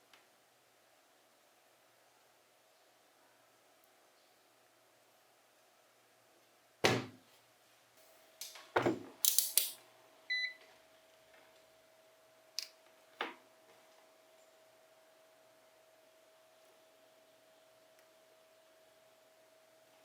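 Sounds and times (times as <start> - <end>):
faint steady hum: 0.0 - 20.0
metal parts knocking and clinking: 9.2 - 9.8.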